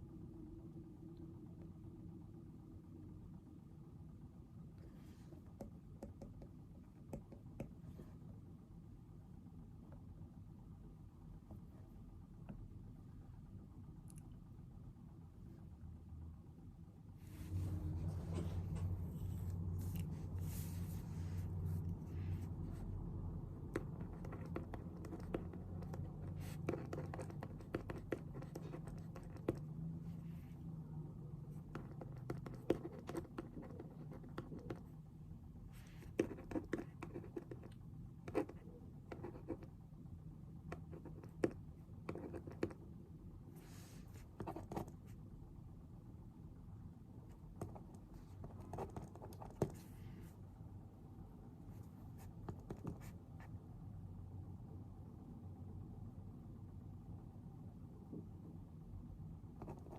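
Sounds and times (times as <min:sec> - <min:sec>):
low rumble: 0:17.2 - 0:23.7
pen scratching on paper: 0:23.6 - 0:29.6, 0:31.6 - 0:34.9, 0:35.8 - 0:37.7, 0:38.3 - 0:39.7, 0:40.7 - 0:42.8, 0:44.2 - 0:45.0, 0:47.6 - 0:50.0, 0:59.6 - 0:59.9.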